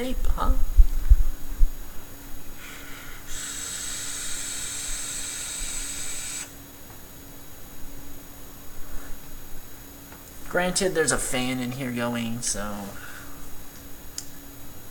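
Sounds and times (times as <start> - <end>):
e-liquid sizzling with high hiss: 3.0 - 6.6.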